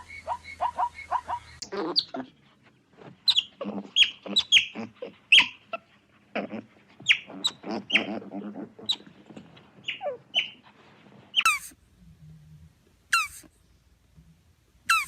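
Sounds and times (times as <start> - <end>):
animal yelping: 0.0 - 2.4, 3.3 - 10.6, 11.4 - 11.8, 13.1 - 13.5
animal chattering: 3.3 - 9.1, 11.4 - 11.8, 13.1 - 13.5.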